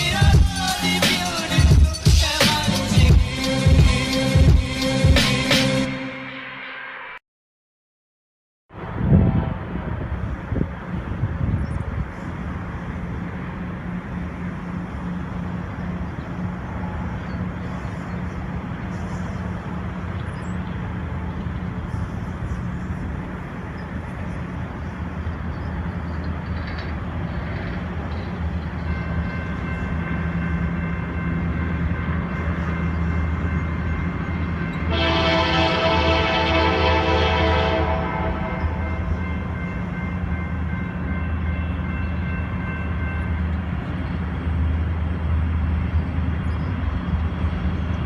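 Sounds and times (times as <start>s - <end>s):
diesel locomotive engine drone: 0.0s - 7.2s, 8.7s - 48.0s
train rumbling past: 0.0s - 7.2s, 8.7s - 48.0s
loud chord of steady tones: 28.8s - 45.6s.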